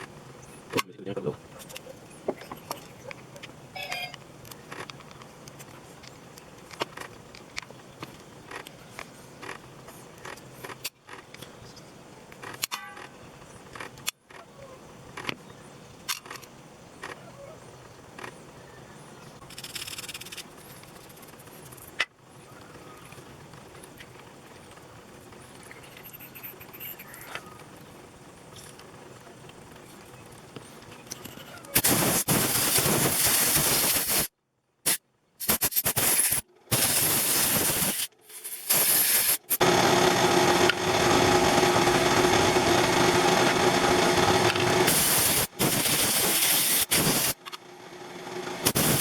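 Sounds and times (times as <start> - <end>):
short hiss: 31.8 - 34.3, 34.9 - 39.6, 44.9 - 47.4, 48.6 - 49.0.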